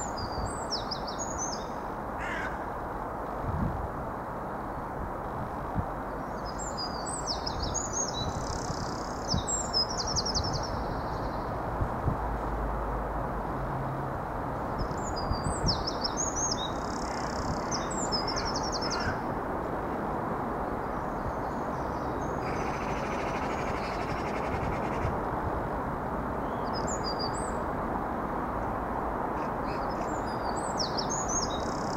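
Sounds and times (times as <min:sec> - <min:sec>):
steady outdoor rumble: 0:07.6 - 0:31.9
small birds chirping: 0:29.6 - 0:31.9.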